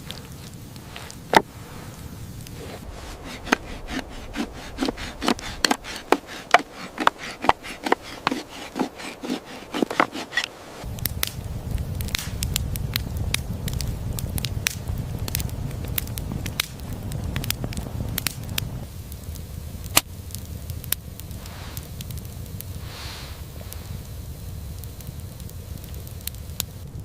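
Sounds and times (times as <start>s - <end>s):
sharp crackles: 0.0s - 27.0s
steady low rumble: 0.0s - 27.0s
knocking and scraping strokes: 0.8s - 10.8s.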